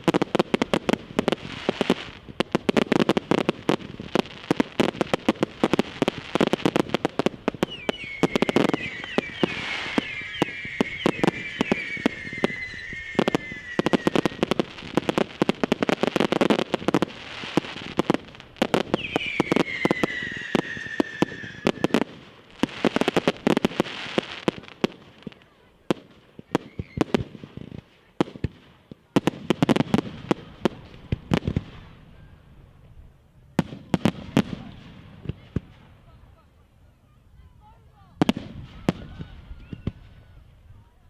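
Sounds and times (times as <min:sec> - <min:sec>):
fireworks bangs and crackling: 0:00.0 - 0:36.4, 0:37.6 - 0:40.7
fireworks whistles sliding down: 0:07.6 - 0:15.1, 0:18.7 - 0:22.2.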